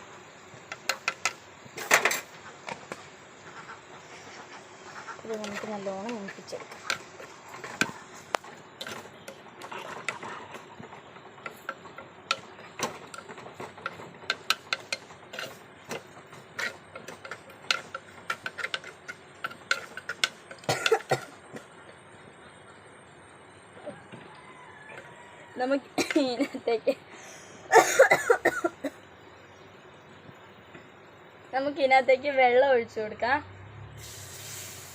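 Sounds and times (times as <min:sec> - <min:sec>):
spices frying in oil: 0:00.0 - 0:23.8, 0:34.0 - 0:34.9
utensil scraping against pot: 0:00.6 - 0:21.7.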